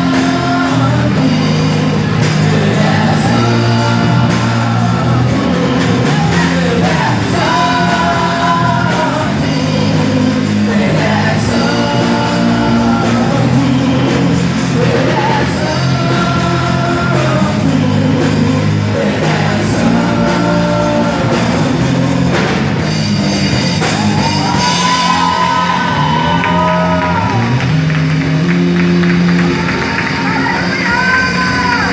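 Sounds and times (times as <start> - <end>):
person singing worship song: 0.0 - 22.7
bass line: 0.0 - 31.9.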